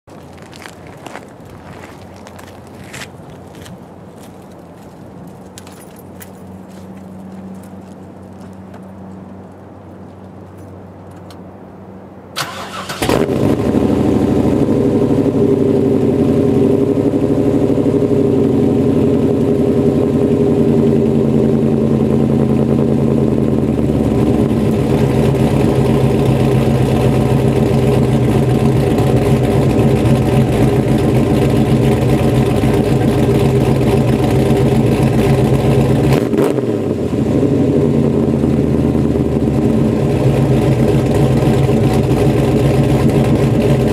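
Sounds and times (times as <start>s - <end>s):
car engine cranking: 12.4s - 13.9s, 24.2s - 36.7s
car engine idling: 12.4s - 43.9s.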